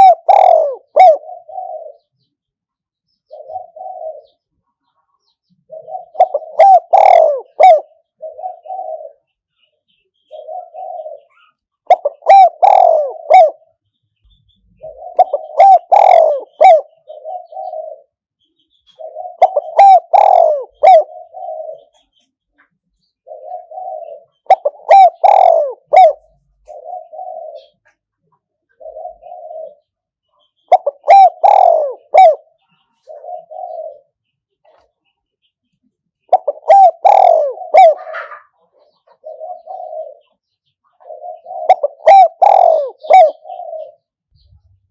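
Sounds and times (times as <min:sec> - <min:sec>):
dove cooing: 0:00.0 - 0:02.2, 0:03.3 - 0:04.5, 0:05.6 - 0:09.4, 0:10.2 - 0:13.8, 0:14.6 - 0:18.3, 0:18.9 - 0:22.2, 0:23.1 - 0:35.0, 0:36.2 - 0:44.9.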